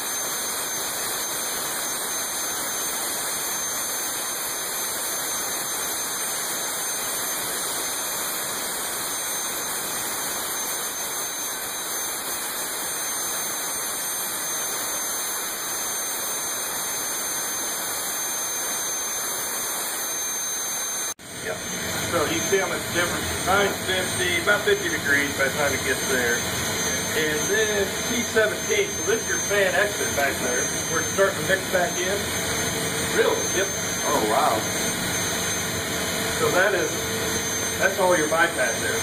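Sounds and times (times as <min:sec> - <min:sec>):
high steady whine tones: 0:00.0 - 0:39.0
jet engine idling roar: 0:20.2 - 0:39.0.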